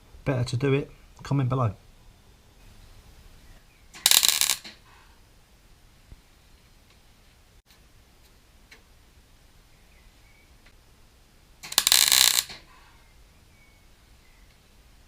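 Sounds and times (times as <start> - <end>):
welding crackling sizzle: 3.9 - 4.8, 11.6 - 12.6.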